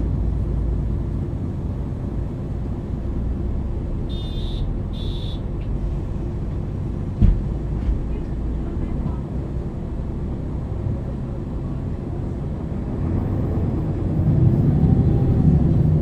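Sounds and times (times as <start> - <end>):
bus diesel engine running: 0.0 - 16.0
thump: 7.2 - 8.0.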